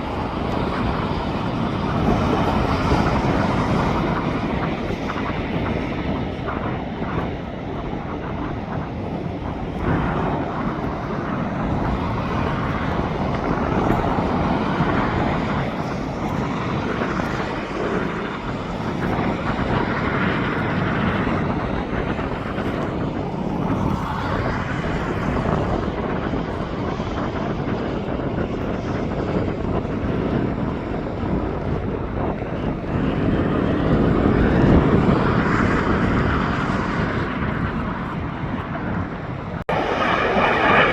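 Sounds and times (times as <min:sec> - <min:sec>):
distant jet engines rumbling: 0:00.0 - 0:40.9.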